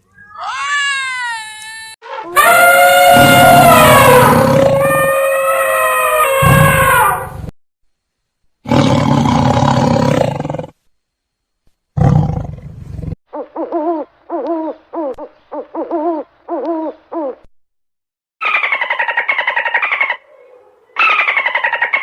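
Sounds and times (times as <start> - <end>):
rough low animal calls: 2.3 - 7.4.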